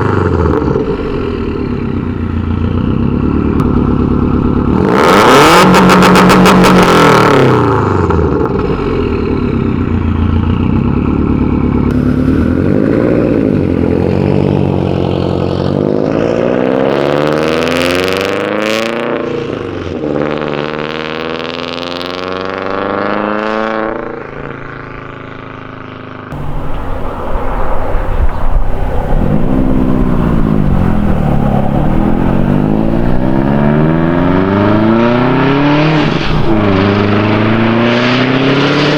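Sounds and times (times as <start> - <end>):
turbocharged car engine revving: 0.0 - 38.9
loud turbo hissing: 26.4 - 37.6.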